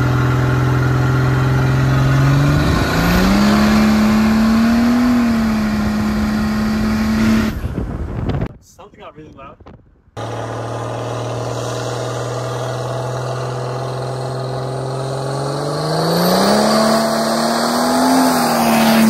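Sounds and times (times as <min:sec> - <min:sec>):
diesel car accelerating past: 0:10.2 - 0:19.0.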